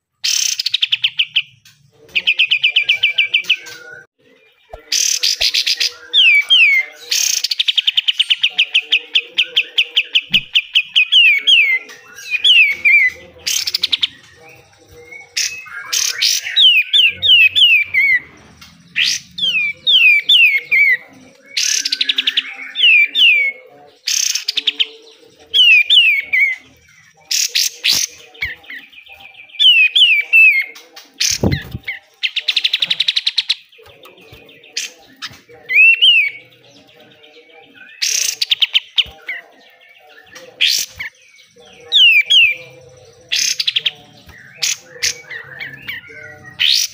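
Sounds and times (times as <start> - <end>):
songbird singing: 0.0 - 46.9.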